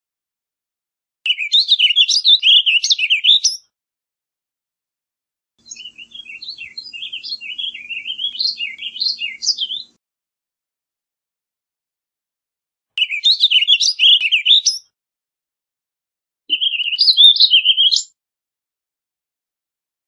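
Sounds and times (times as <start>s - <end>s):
bird warbling song: 1.3s - 3.6s, 5.6s - 10.0s, 13.0s - 14.8s, 16.5s - 18.2s.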